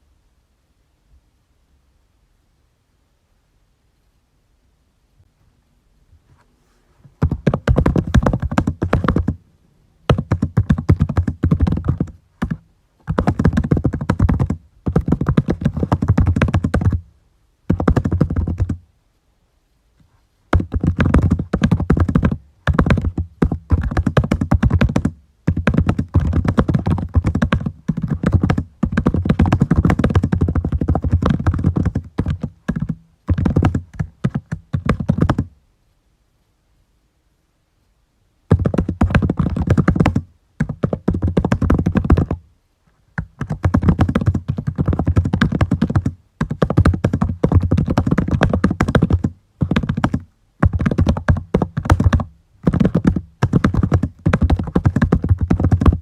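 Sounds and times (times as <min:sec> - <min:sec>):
computer keyboard typing: 0:07.2 - 0:09.4, 0:10.1 - 0:17.0, 0:17.7 - 0:18.8, 0:20.6 - 0:35.5, 0:43.2 - 0:56.0.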